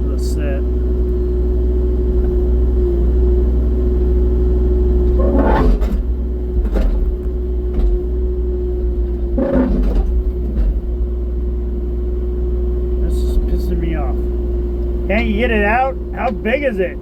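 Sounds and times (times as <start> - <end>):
constant whine: 0.0 - 17.0
diesel engine running: 0.0 - 17.0
bucket clunking and scraping rock: 5.1 - 8.1, 9.2 - 10.9.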